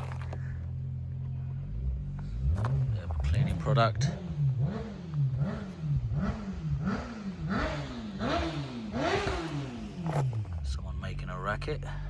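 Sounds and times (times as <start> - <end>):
engine revving in quick blips: 1.4 - 10.7.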